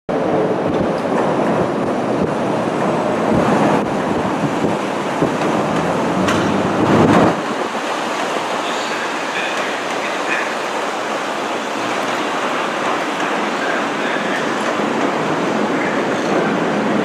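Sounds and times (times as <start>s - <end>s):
wind on microphone: 0.1s - 8.2s
train wheels on track: 0.1s - 17.0s.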